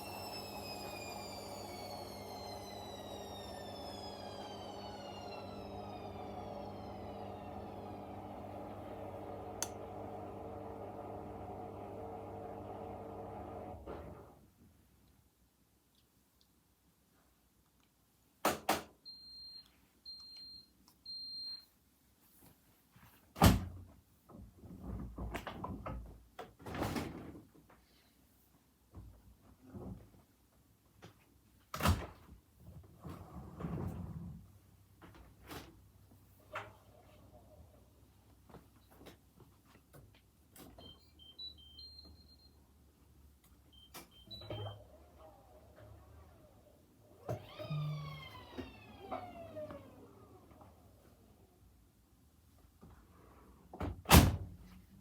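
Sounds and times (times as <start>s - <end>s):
washing machine beeper tune: 0.0s - 9.4s, 40.8s - 42.6s, 43.7s - 44.9s.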